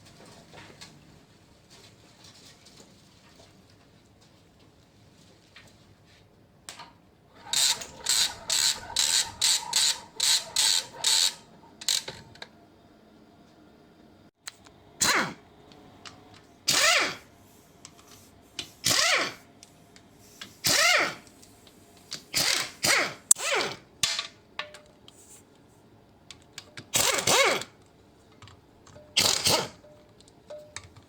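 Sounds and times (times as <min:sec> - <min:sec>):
power tool bursts: 0:07.4 - 0:12.1, 0:16.7 - 0:17.2, 0:18.8 - 0:19.4, 0:20.6 - 0:21.2, 0:22.3 - 0:23.8, 0:26.9 - 0:27.7, 0:29.2 - 0:29.8.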